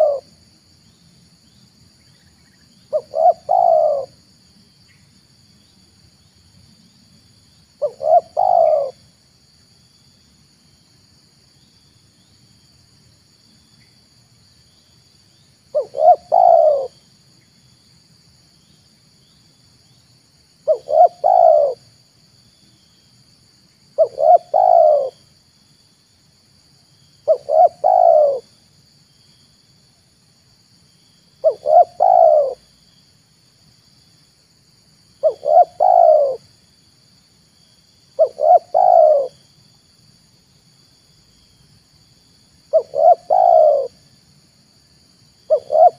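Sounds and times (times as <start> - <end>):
dove cooing: 0.0 - 0.3, 2.9 - 4.2, 7.8 - 9.0, 15.7 - 17.0, 20.6 - 21.8, 24.0 - 25.2, 27.2 - 28.5, 31.4 - 32.6, 35.2 - 36.5, 38.2 - 39.4, 42.7 - 44.0, 45.5 - 45.9
faint high-pitched hum: 0.0 - 45.9.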